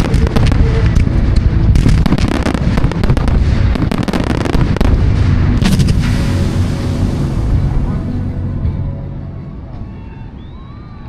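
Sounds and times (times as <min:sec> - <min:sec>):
fireworks bangs and crackling: 0:00.0 - 0:08.3.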